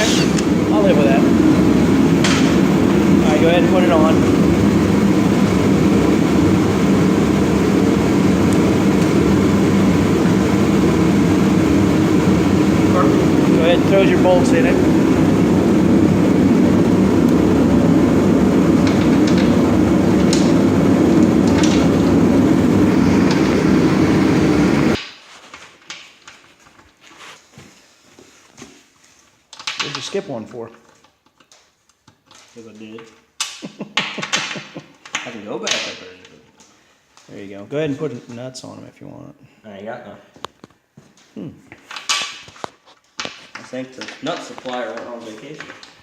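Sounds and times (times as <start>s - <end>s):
low mechanical drone: 0.0s - 25.0s.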